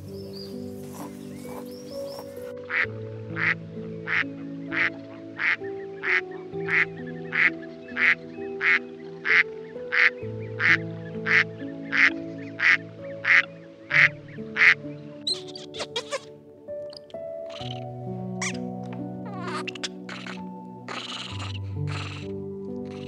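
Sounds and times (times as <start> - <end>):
background music with held notes: 0.0 - 23.0
duck quacking: 2.7 - 16.3, 17.5 - 17.8, 18.4 - 18.6, 19.3 - 23.0.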